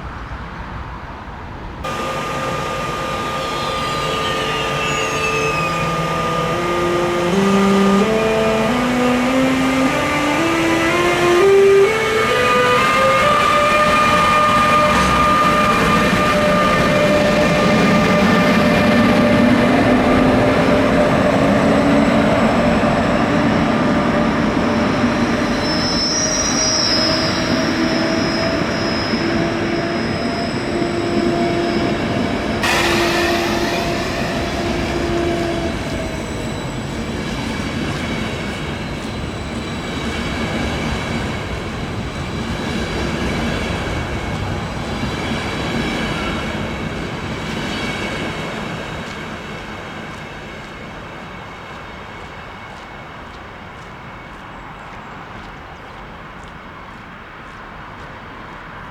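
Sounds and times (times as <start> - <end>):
train rolling rumble: 0.0 - 58.9
steady whining tones: 1.9 - 42.6
train wheels squealing: 1.9 - 56.0.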